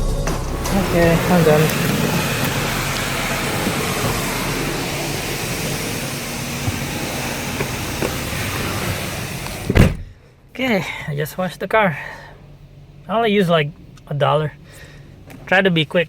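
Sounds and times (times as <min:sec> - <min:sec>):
car wash spray hissing: 0:00.0 - 0:09.8
car door shutting: 0:00.0 - 0:10.2.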